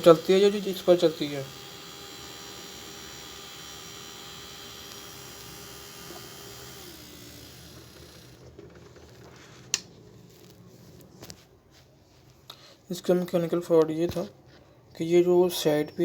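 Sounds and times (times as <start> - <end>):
small motor fan whining: 0.0 - 9.9.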